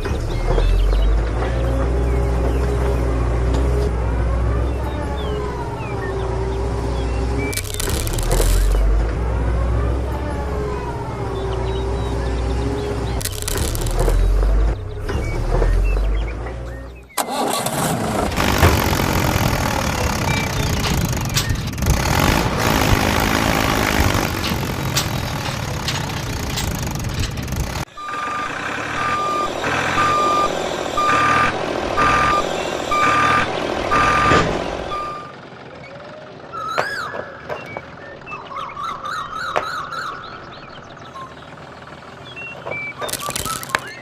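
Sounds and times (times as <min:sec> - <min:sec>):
vehicle engine rumbling: 0:00.0 - 0:44.0
reversing alarm beeping: 0:27.9 - 0:35.4.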